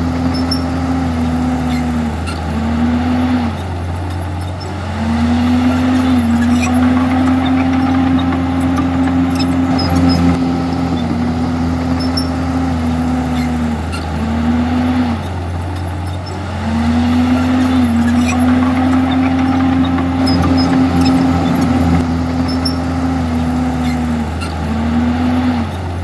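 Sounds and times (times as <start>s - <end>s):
bulldozer diesel engine running: 0.0s - 26.0s.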